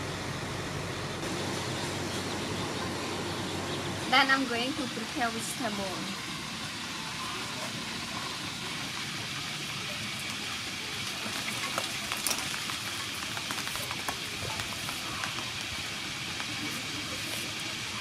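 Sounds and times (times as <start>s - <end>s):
meat sizzling in oil: 4.2s - 18.0s
oil popping: 4.3s - 18.0s.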